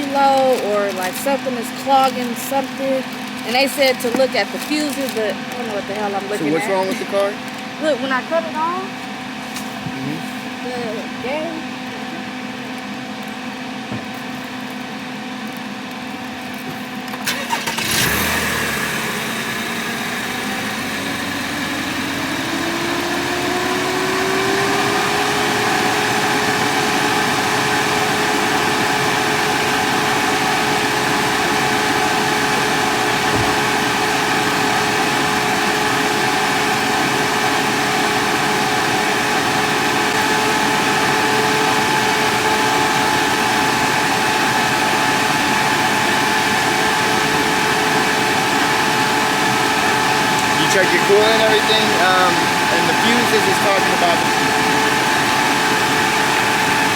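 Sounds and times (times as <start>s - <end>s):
car cooling fans running: 0.0s - 56.9s
steady hum: 0.0s - 56.9s
car engine cranking and starting: 17.1s - 56.9s.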